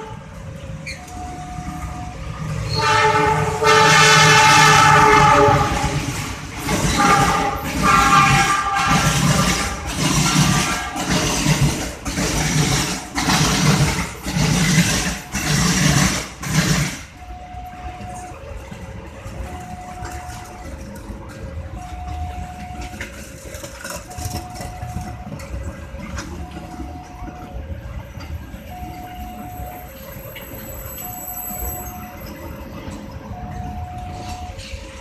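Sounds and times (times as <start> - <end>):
level crossing two-tone alarm: 0.0 - 35.0
road traffic rumble: 0.0 - 35.0
loud noise: 2.5 - 17.6.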